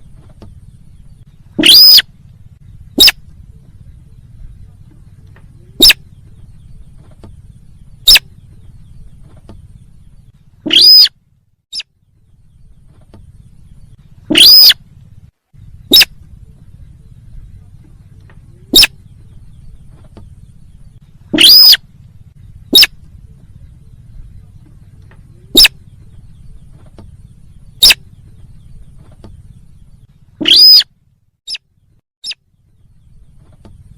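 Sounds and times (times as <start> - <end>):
faint low hum: 0.0 - 33.9
sharp bird call notes: 1.6 - 2.1, 10.7 - 11.1, 14.3 - 14.8, 21.3 - 21.8, 30.4 - 30.9.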